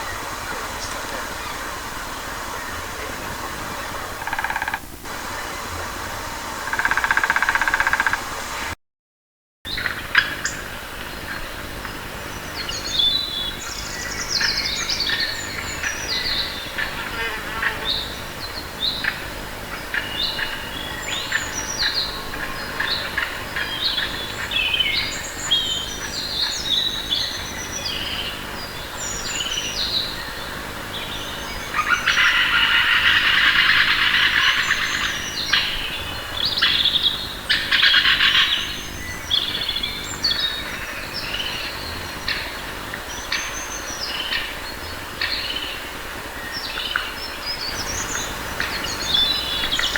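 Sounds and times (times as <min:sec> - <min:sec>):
songbirds chirping: 0:00.0 - 0:08.2, 0:10.6 - 0:49.9
loud rapid bird trill: 0:47.6 - 0:49.9.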